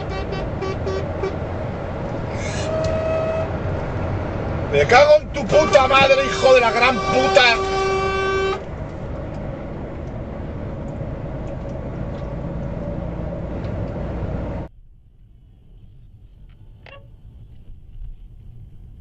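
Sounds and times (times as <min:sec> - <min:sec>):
car horn: 0:00.0 - 0:08.8
vehicle and road noise: 0:00.0 - 0:19.0.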